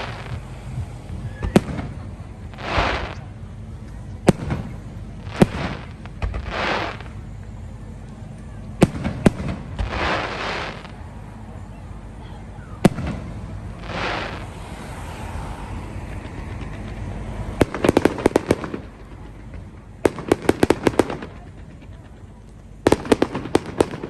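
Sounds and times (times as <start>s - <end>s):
firework bang: 0.0s - 0.5s, 1.4s - 3.3s, 4.2s - 7.2s, 8.8s - 11.0s, 12.8s - 14.7s
firework hissing rush: 0.0s - 3.5s, 4.2s - 7.4s, 8.8s - 11.2s, 12.7s - 19.0s
firework crackling pops: 0.0s - 11.1s, 12.8s - 24.0s.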